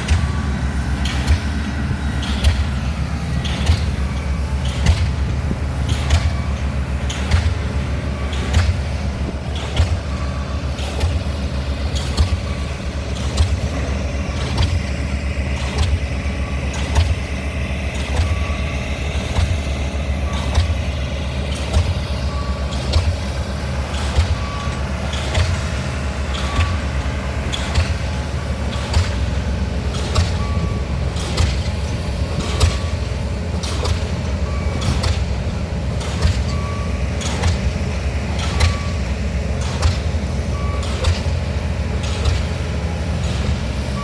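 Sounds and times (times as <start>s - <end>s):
low engine drone: 0.0s - 44.0s
pile hammer blows: 21.5s - 44.0s.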